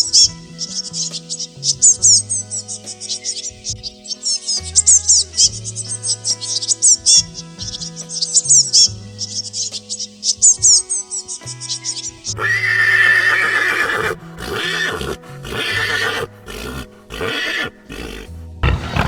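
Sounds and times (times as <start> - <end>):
background music: 0.0 - 19.0
horse neighing: 12.3 - 19.0.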